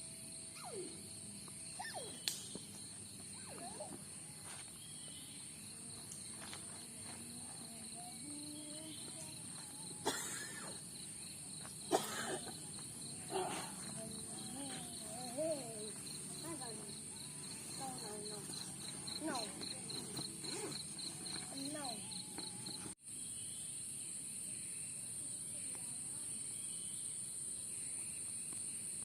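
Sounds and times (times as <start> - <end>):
crickets trilling: 0.0 - 29.0
faint voices: 5.8 - 22.9.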